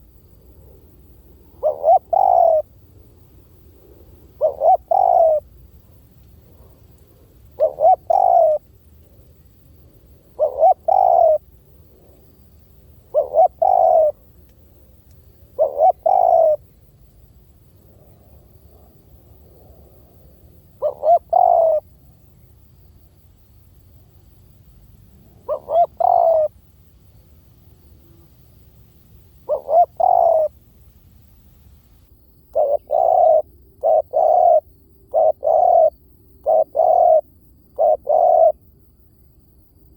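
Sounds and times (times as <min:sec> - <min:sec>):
dove cooing: 0:01.4 - 0:02.7, 0:03.7 - 0:12.3, 0:12.9 - 0:16.7, 0:17.9 - 0:21.9, 0:25.3 - 0:26.6, 0:29.4 - 0:30.6, 0:31.4 - 0:37.2, 0:37.8 - 0:38.6.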